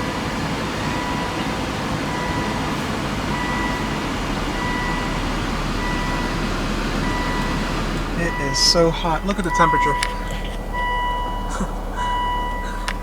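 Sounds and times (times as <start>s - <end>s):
car engine idling: 0.0s - 13.0s
electronic warning beep: 0.0s - 13.0s.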